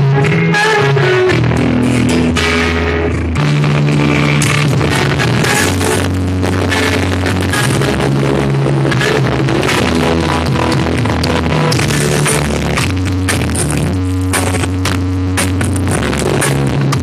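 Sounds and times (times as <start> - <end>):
heavy sustained bass line: 0.0 - 17.0
reggae song through car speakers: 0.0 - 17.0.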